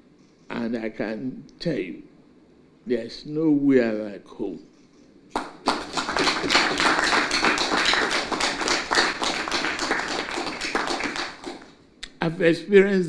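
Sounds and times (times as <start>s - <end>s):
audience applauding: 5.3s - 11.8s.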